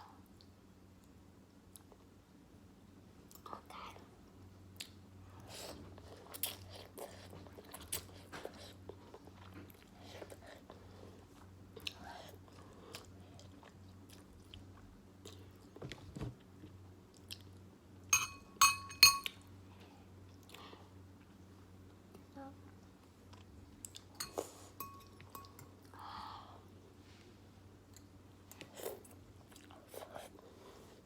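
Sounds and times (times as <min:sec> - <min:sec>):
person chewing noodles: 0:06.0 - 0:15.6, 0:17.1 - 0:17.6, 0:27.9 - 0:30.5
utensil clinking bowl: 0:18.1 - 0:19.4, 0:24.2 - 0:25.7.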